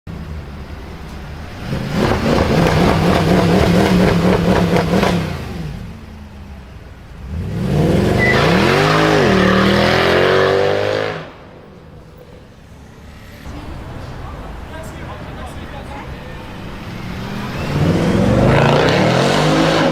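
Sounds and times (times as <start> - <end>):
loud car exhaust revving: 1.6 - 6.0, 7.2 - 11.5, 16.8 - 19.9.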